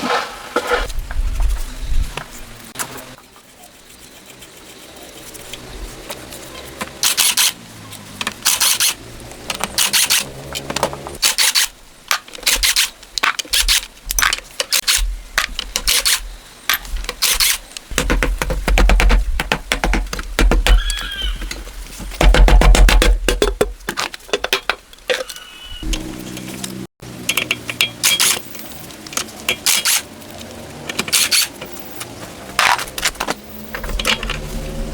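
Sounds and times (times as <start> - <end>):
rubbing and scraping strokes: 0.0 - 10.4.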